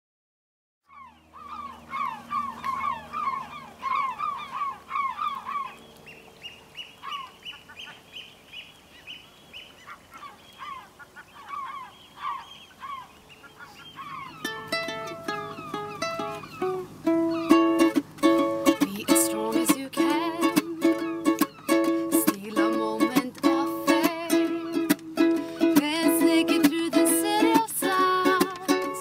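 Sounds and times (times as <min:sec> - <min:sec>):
birds calling: 0:00.8 - 0:29.0
plucked-string music: 0:14.2 - 0:29.0.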